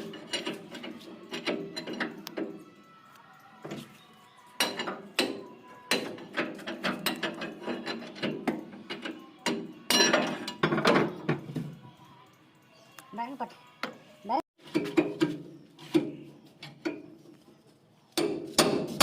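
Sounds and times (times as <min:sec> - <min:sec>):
hand tools clanking on metal: 0:00.0 - 0:02.9, 0:03.6 - 0:11.8, 0:14.6 - 0:17.4.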